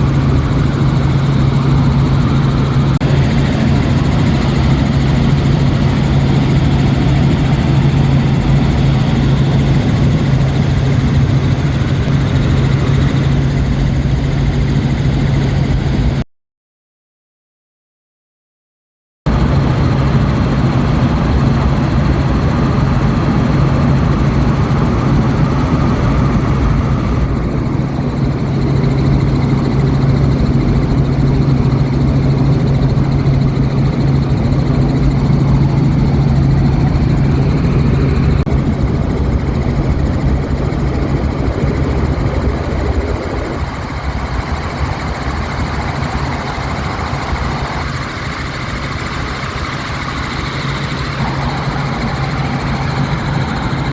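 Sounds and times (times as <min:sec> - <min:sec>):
helicopter engine and rotor drone: 0:00.0 - 0:16.2, 0:19.3 - 0:53.9
wind rushing past microphone: 0:19.3 - 0:53.9.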